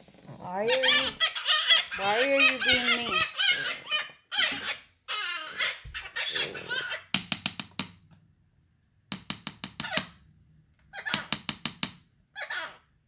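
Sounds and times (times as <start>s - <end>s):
parrot squawking chatter: 0.4s - 7.2s, 10.9s - 11.3s, 12.3s - 12.9s
parrot staccato calls: 0.7s - 7.2s.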